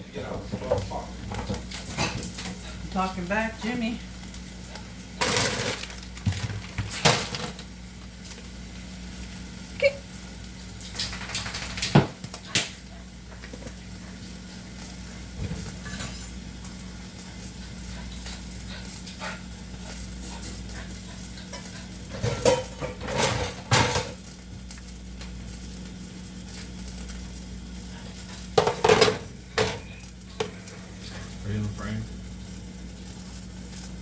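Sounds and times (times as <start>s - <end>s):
utensils and dishes clinking: 15.4s - 16.4s, 21.4s - 24.2s, 28.6s - 31.2s
steady hiss: 24.2s - 34.0s.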